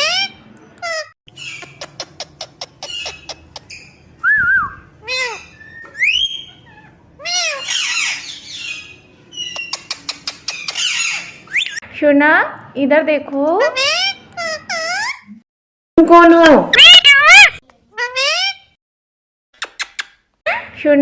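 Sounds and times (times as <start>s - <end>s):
parrot whistling: 4.2s - 9.9s, 10.6s - 11.8s
parrot squawk: 5.0s - 11.8s, 13.6s - 15.3s, 16.7s - 18.7s.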